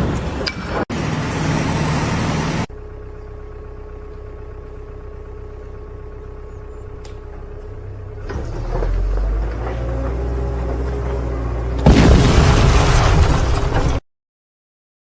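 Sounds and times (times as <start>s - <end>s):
engine running: 0.0s - 12.3s
click: 7.0s - 7.2s.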